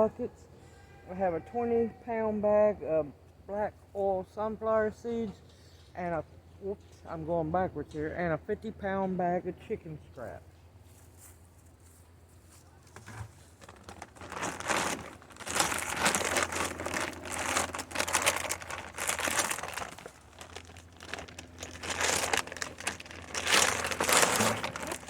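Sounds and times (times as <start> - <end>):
feed bag crinkling and rustling: 12.9 - 25.0.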